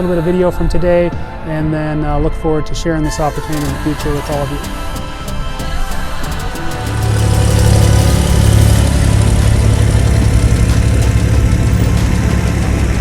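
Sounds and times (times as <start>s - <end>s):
piston aircraft engine running: 6.3s - 13.0s.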